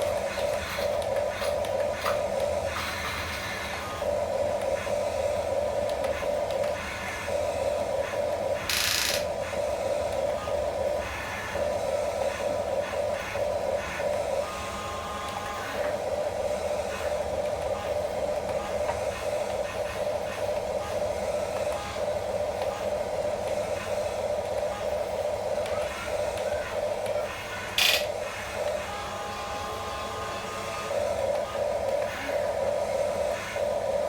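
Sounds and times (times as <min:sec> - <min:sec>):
toy electric motors and gearboxes: 0:08.0 - 0:09.6, 0:24.6 - 0:33.6.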